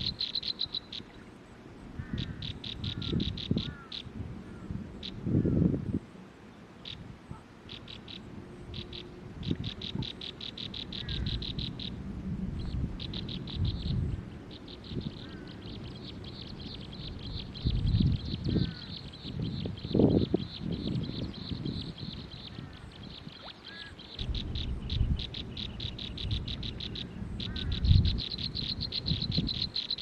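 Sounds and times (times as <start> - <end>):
small bird chirping trills: 0.0 - 1.3, 7.7 - 12.0, 12.6 - 30.0
faint gliding bird whistles: 0.0 - 1.4, 6.8 - 12.0, 12.6 - 30.0.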